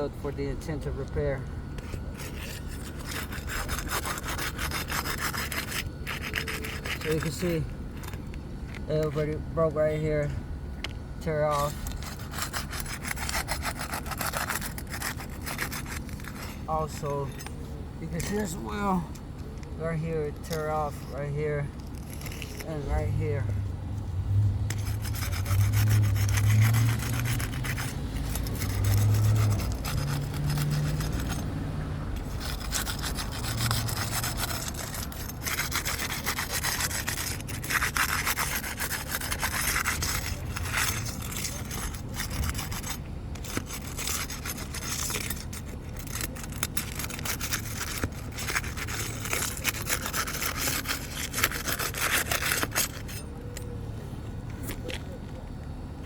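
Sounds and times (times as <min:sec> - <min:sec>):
crowbar scraping under shingles: 0:00.6 - 0:09.4, 0:11.2 - 0:19.0, 0:19.8 - 0:23.5, 0:24.7 - 0:31.6, 0:32.2 - 0:53.6
shingles tearing: 0:01.8 - 0:08.3, 0:11.5 - 0:16.7, 0:20.3 - 0:22.8, 0:24.8 - 0:53.6.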